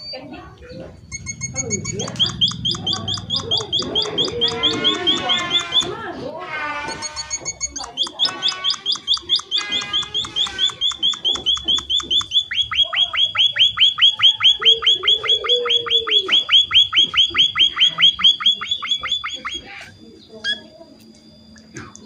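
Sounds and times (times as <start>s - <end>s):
finch chirping: 0.7s - 6.0s, 6.9s - 19.9s.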